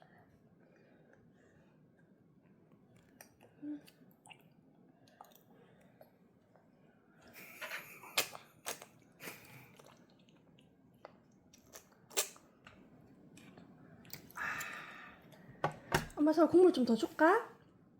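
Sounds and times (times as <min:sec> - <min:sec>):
child chewing: 0:02.7 - 0:06.8, 0:07.4 - 0:15.5.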